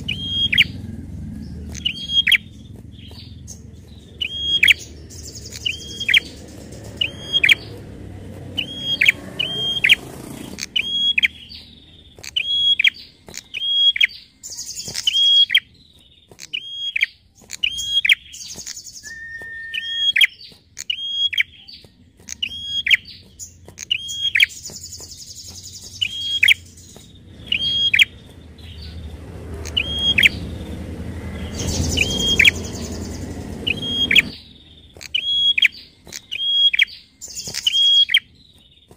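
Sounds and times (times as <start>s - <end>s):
bird calling: 0.0s - 38.9s
scratchy buzzing rattles: 0.7s - 11.6s
short level whistle: 19.0s - 20.1s.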